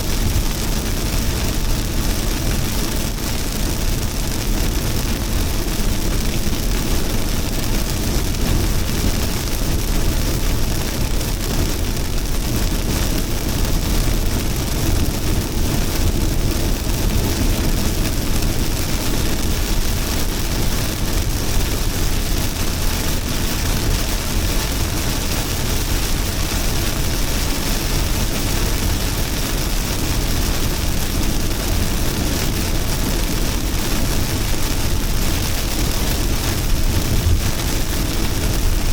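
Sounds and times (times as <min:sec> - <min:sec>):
heavy rain falling: 0:00.0 - 0:38.9
deep rumble: 0:34.7 - 0:38.9.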